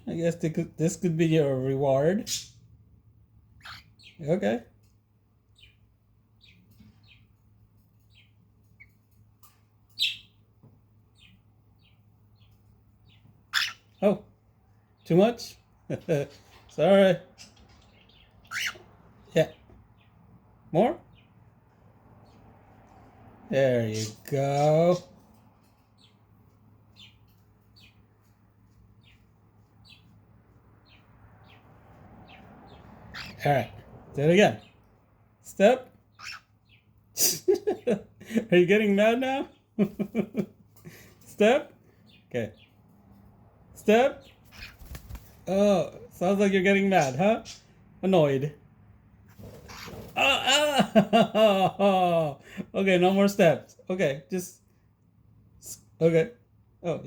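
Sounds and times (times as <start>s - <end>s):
cockatiel chirping: 3.6s - 4.2s, 13.5s - 14.0s, 18.4s - 18.9s, 33.1s - 33.4s, 36.2s - 36.5s, 44.5s - 45.2s.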